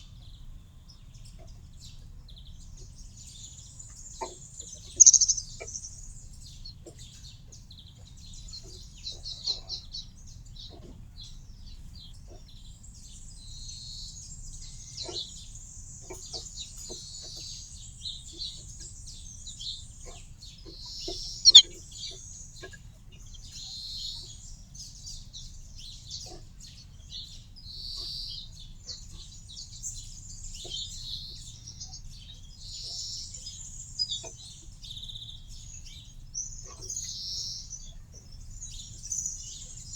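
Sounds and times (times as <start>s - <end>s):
small birds chirping: 0.0s - 39.9s
sharp loud bird call: 5.0s - 5.6s, 21.5s - 21.7s.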